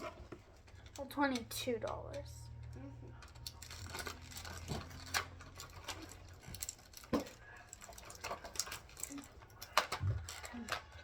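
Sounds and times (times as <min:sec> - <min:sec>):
plastic toy pieces clicking: 0:03.2 - 0:11.0.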